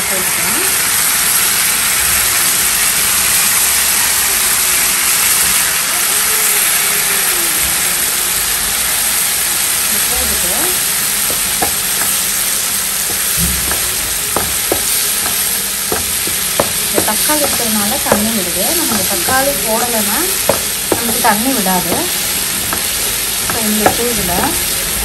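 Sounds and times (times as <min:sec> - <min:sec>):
vegetables sizzling in hot oil: 0:00.0 - 0:25.0
wooden spatula stirring: 0:11.1 - 0:24.7
spatula knocking on pan: 0:11.2 - 0:24.7.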